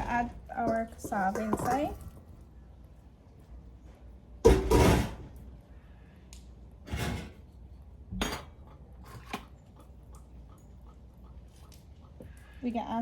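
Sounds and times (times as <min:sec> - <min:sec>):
pots and dishes clattering: 0:00.0 - 0:02.1, 0:08.1 - 0:09.5.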